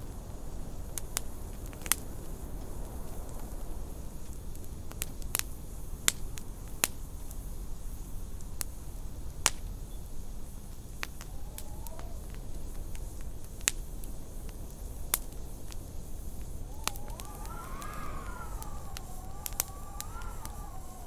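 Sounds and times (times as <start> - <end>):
whistling howl of wind: 0.0 - 21.0
wood fire crackling and popping: 10.9 - 14.0, 16.6 - 21.0.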